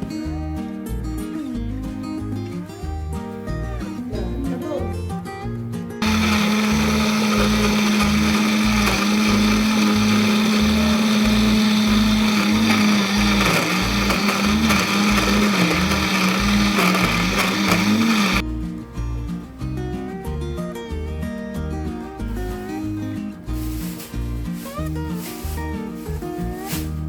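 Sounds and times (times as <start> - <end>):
electric blender running: 6.0 - 18.4.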